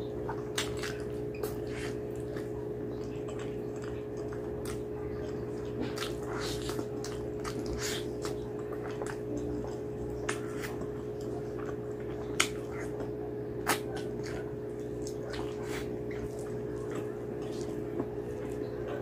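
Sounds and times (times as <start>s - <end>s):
wet chewing: 0.0s - 19.0s
lip smacks: 5.7s - 18.8s.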